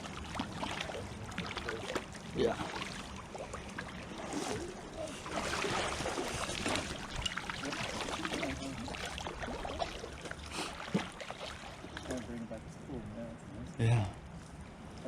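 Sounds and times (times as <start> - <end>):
wind rumbling on microphone: 0.0 - 10.2
river flowing: 0.0 - 12.9.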